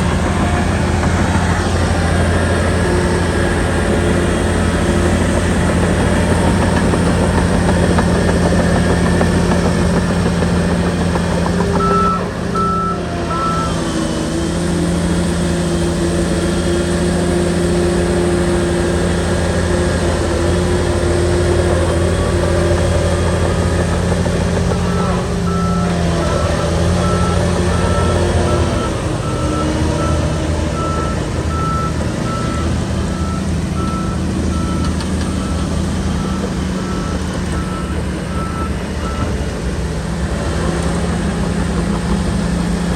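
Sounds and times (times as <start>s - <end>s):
diesel engine running: 0.0s - 42.9s
reversing alarm beeping: 11.7s - 14.0s, 24.6s - 39.5s.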